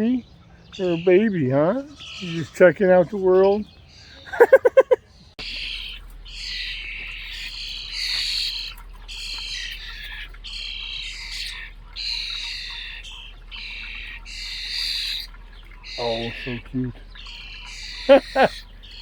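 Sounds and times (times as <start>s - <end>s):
nestlings raspy begging calls: 0.0s - 19.0s.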